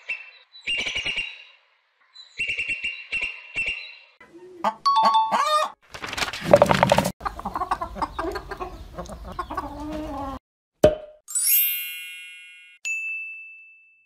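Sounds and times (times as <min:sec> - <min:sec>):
cartoon hens clucking: 0:04.4 - 0:05.8, 0:07.2 - 0:10.4.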